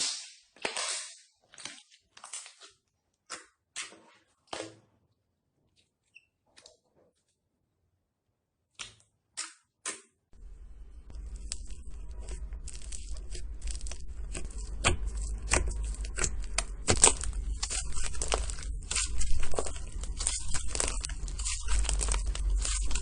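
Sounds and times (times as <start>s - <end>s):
low hum: 10.4s - 23.0s
slime crackling and clicking: 11.2s - 23.0s
slime popping: 11.2s - 23.0s.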